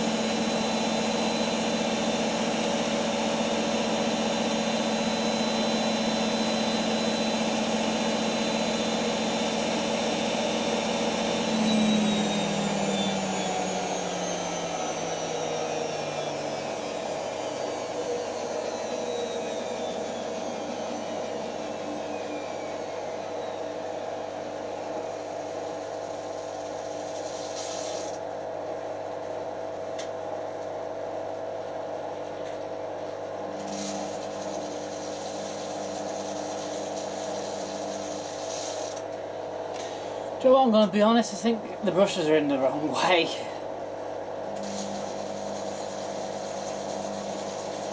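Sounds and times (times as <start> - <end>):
washing machine spinning with whine: 0.0 - 47.9
steady hum: 33.3 - 47.9.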